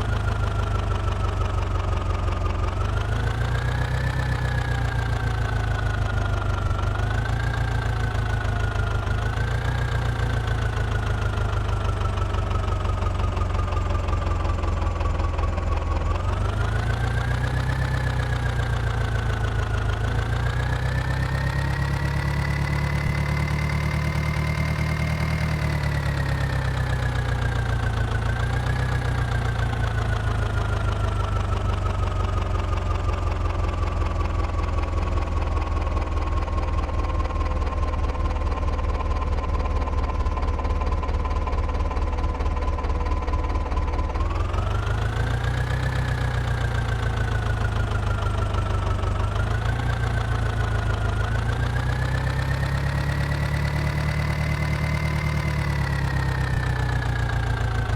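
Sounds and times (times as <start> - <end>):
tractor diesel engine revving: 40.2 - 57.9.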